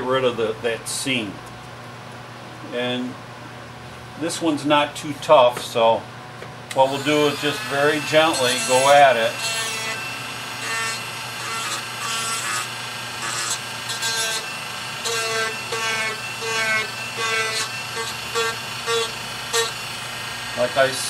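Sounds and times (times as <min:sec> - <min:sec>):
rotary tool grinding wood: 0:06.8 - 0:21.0.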